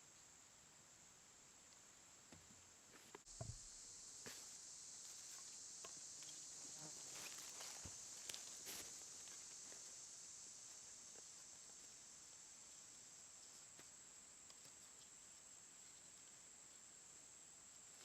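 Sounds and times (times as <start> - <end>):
high-pitched insect chorus: 3.2 - 18.0.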